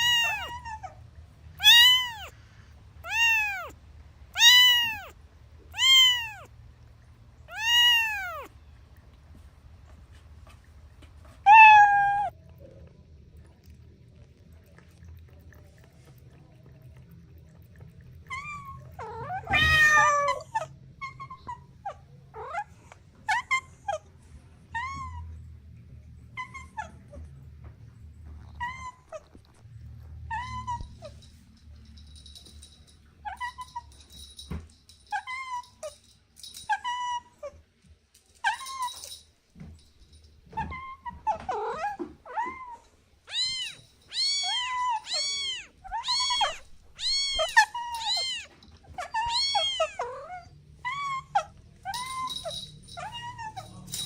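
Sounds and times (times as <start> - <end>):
kitten mewing: 0.0 - 0.8, 1.6 - 2.3, 3.0 - 6.5, 7.5 - 8.5.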